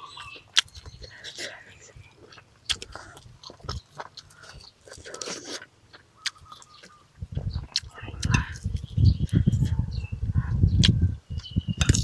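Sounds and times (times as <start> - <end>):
person chewing crisp fried fish: 0.0 - 9.4
wet mouth clicks: 2.3 - 9.7, 10.8 - 12.0.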